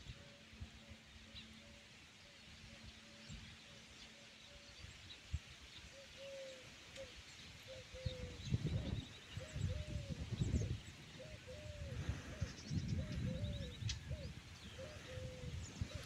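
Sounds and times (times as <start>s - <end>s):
bird low-pitched calls: 5.9s - 16.0s.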